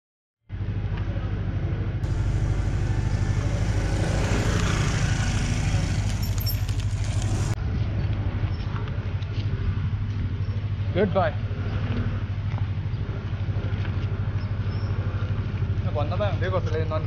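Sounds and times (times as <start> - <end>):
motorcycle engine idling: 2.0 - 7.6
scooter passing: 2.0 - 7.6.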